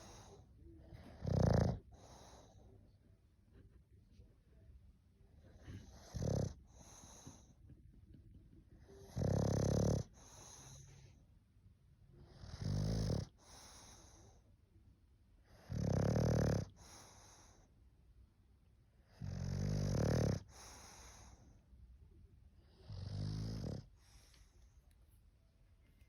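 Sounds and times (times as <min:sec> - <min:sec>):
dog snoring: 0:00.0 - 0:02.6, 0:05.5 - 0:07.5, 0:08.8 - 0:11.2, 0:12.2 - 0:14.4, 0:15.4 - 0:17.7, 0:19.0 - 0:21.6, 0:22.6 - 0:24.4.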